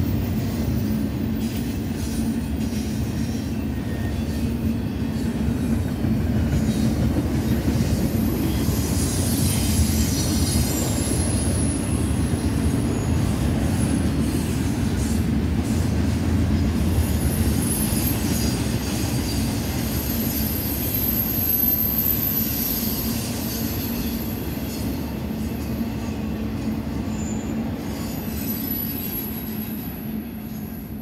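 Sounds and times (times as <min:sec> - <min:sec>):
freight train wheels rumbling: 0:00.0 - 0:31.0
high-pitched wheel squeal: 0:08.2 - 0:14.0, 0:17.0 - 0:24.9, 0:27.1 - 0:30.7.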